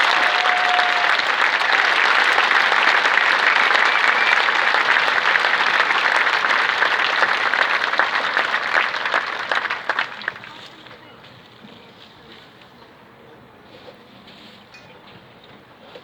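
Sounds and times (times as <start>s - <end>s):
large crowd applauding: 0.0s - 11.0s.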